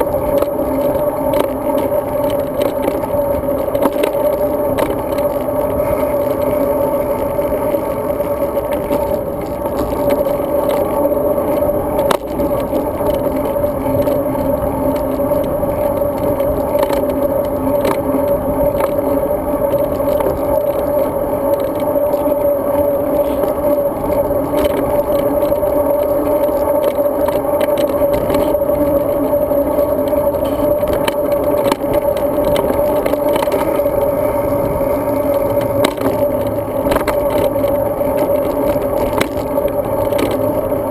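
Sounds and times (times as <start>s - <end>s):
bicycle tyres rumbling on road: 0.0s - 40.9s
clicks and rattles from bumps: 0.0s - 40.9s.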